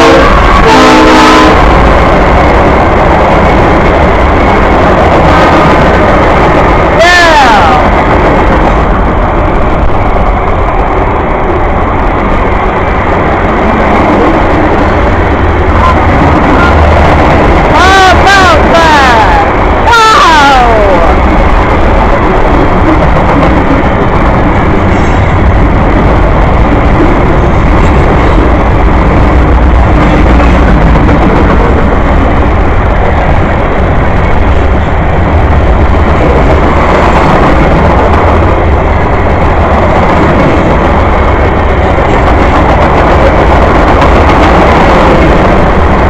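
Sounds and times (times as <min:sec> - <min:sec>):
freight train rumbling past: 0:00.0 - 0:46.0
wind on microphone: 0:20.7 - 0:46.0.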